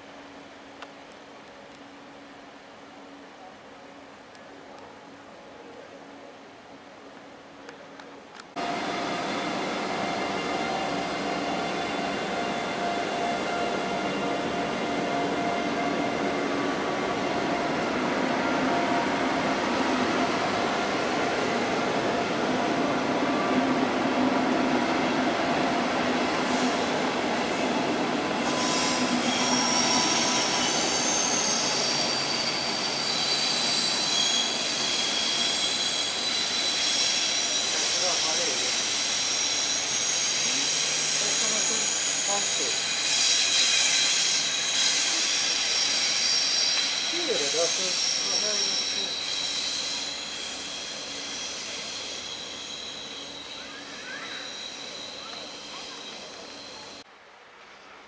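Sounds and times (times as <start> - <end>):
train rumbling on rails: 8.5 - 57.1
train wheels squealing: 8.7 - 22.3, 25.9 - 57.1.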